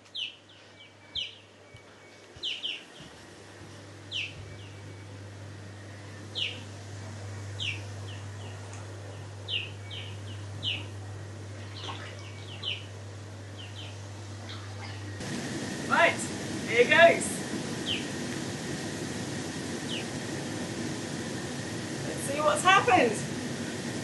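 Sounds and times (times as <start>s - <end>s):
bird chirping: 0.0s - 1.6s, 2.4s - 3.1s, 4.1s - 5.0s, 6.3s - 6.7s, 7.6s - 11.0s, 11.6s - 13.0s, 13.6s - 14.6s, 17.8s - 18.2s, 19.8s - 20.1s
hot tub pump humming: 0.0s - 24.0s.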